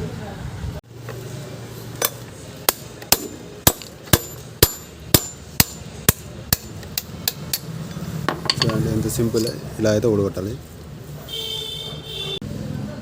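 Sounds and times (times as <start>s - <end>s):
hammer striking metal: 2.0s - 8.8s.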